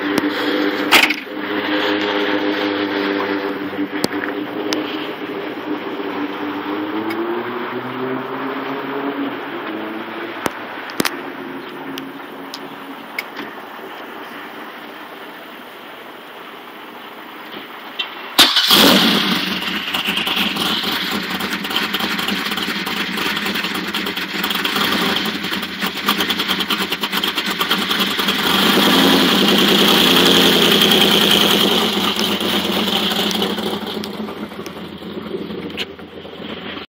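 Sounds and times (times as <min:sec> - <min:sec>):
engine starting and idling choppily: 0:18.0 - 0:36.9.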